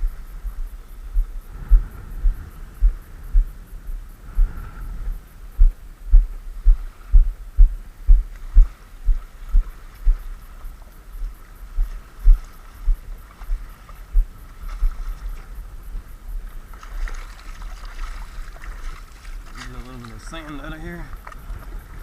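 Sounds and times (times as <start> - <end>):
low thumps: 0.0 - 15.0
faint steady hum: 0.0 - 22.0.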